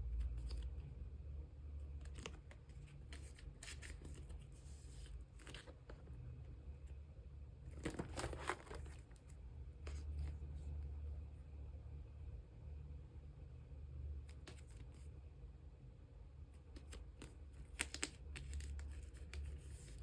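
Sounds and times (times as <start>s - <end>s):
steady low hum: 0.0s - 20.0s
plastic sleeves crinkling: 1.9s - 6.1s, 7.7s - 10.4s, 16.7s - 20.0s.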